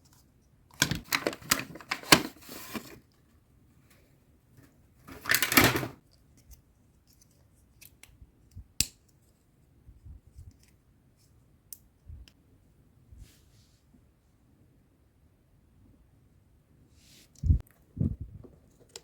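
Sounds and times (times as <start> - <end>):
packaging scraping: 0.8 - 3.0, 5.1 - 6.0
small clicks of packaging: 5.1 - 9.4.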